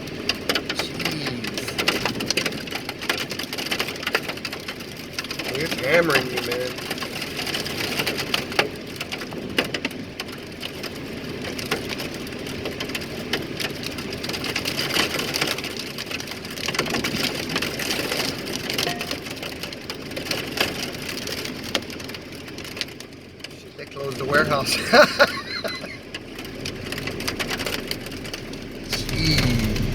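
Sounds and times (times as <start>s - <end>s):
hailstones pelting a vehicle: 0.0s - 29.9s
heavy rain hiss: 28.0s - 29.9s.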